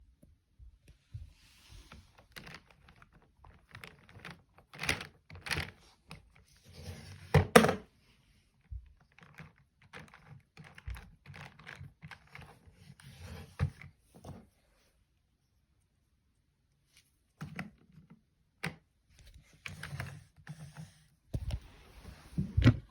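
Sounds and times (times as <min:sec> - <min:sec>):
plastic parts clicking and knocking: 0:02.3 - 0:06.3, 0:08.9 - 0:12.6.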